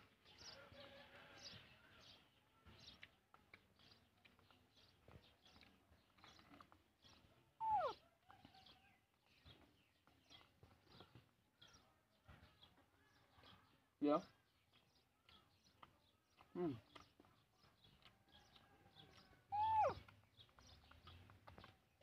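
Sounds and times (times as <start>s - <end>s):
faint bird chirps: 7.6s - 8.6s, 19.5s - 20.1s.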